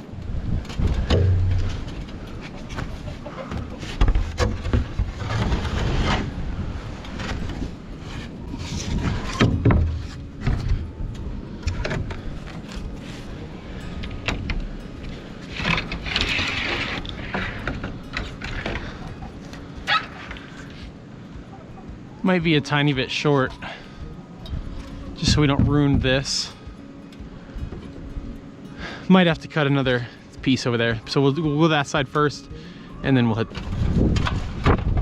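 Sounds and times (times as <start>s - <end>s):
gusty wind buffeting microphone: 0.0s - 30.5s, 33.5s - 35.0s
sheet metal roofing clattering: 0.8s - 6.4s.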